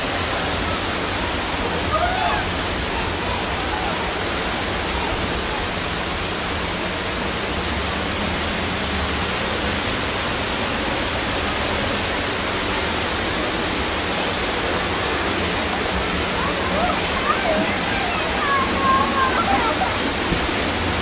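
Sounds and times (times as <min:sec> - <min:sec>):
rushing water from heavy rain: 0:00.0 - 0:21.0.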